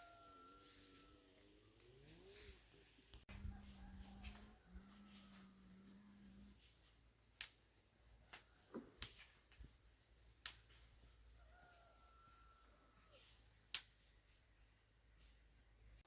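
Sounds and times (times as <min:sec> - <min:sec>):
faint sharp clicks: 0:10.4 - 0:10.8.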